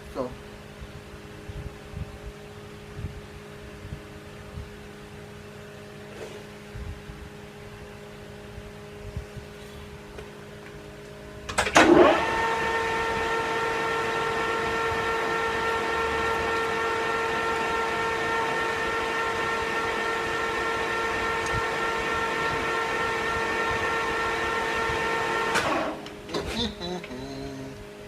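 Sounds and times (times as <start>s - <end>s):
metal lathe whining: 11.8s - 26.0s.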